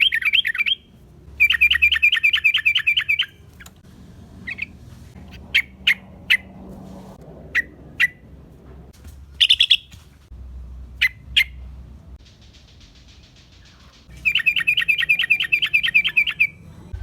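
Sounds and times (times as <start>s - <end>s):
bird calling sharp notes: 0.0s - 3.4s, 9.4s - 10.0s, 12.4s - 16.6s.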